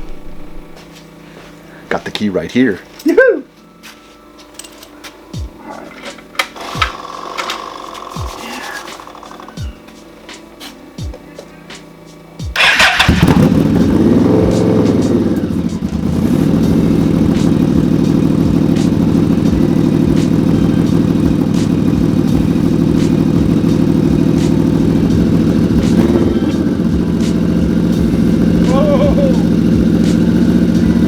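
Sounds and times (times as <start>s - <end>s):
starter motor whirring: 6.4s - 9.6s, 12.6s - 14.7s
motorcycle engine revving and idling: 6.6s - 9.8s, 12.5s - 31.0s.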